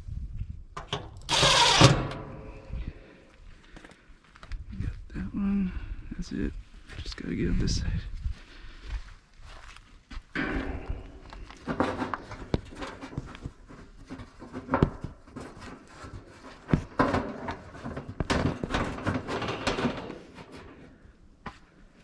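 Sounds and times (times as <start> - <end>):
metal clattering and rattling: 0.8 - 2.6, 10.4 - 21.0.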